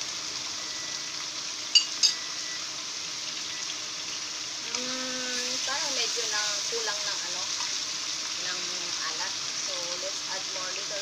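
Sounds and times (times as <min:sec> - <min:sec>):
meat and onions sizzling in a pan: 0:00.0 - 0:11.0
metal spoon clinking on saucer: 0:01.8 - 0:02.2.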